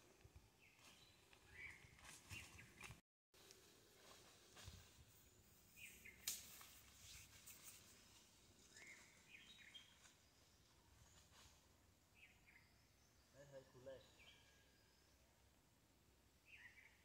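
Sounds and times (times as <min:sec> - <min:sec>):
faint bird chirps: 0:07.5 - 0:15.3, 0:16.4 - 0:17.0.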